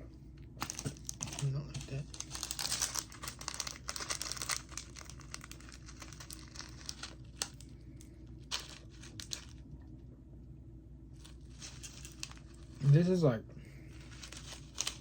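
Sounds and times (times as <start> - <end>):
plastic wrapper crinkling: 0.6 - 9.7, 11.2 - 12.9, 13.9 - 15.0.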